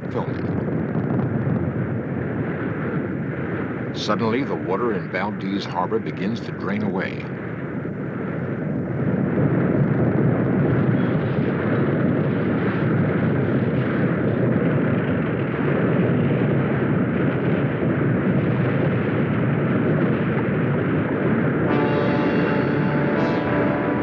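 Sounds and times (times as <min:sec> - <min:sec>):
earthquake rumbling roar: 0:17.2 - 0:24.0.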